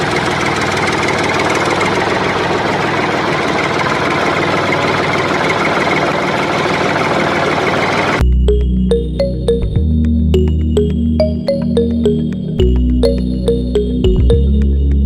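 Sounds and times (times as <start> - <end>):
engine running with rattling: 0.0 - 8.2
electronic music: 8.2 - 15.0.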